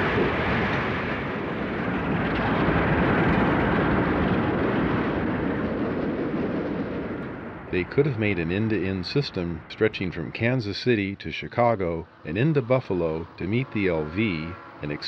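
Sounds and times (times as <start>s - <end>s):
boxcars rolling by: 0.0s - 15.0s
freight train passing: 0.0s - 15.0s.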